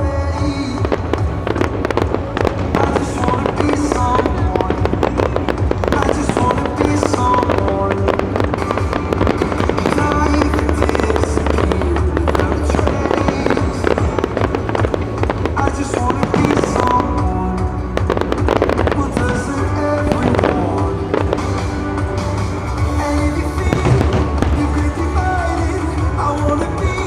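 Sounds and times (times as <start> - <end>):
fireworks bursting and crackling: 0.0 - 27.0
loud music with bass line: 0.0 - 27.0.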